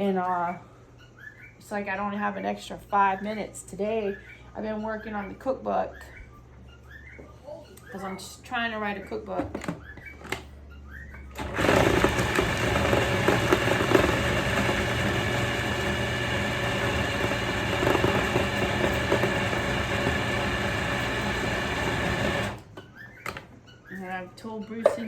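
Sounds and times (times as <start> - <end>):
electric grinder grinding meat: 11.4 - 22.6.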